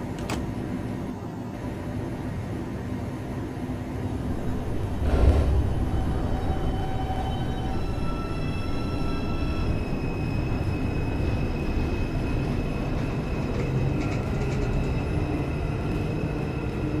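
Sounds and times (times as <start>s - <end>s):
train wheels rumbling on rail: 0.0s - 17.0s
high whining tones: 4.3s - 11.4s.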